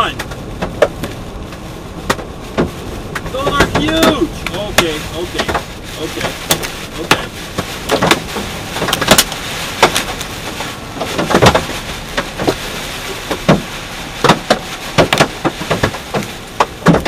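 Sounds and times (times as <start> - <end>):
rain and hail rushing: 0.0 - 17.0
hailstones banging on truck: 2.0 - 17.0.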